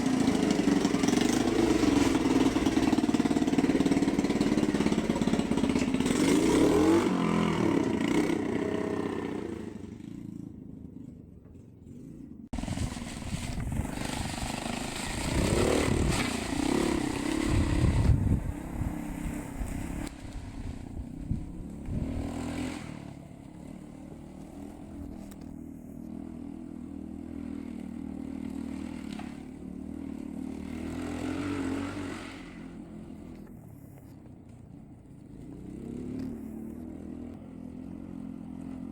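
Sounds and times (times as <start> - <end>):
minibike engine revving: 0.0 - 38.9.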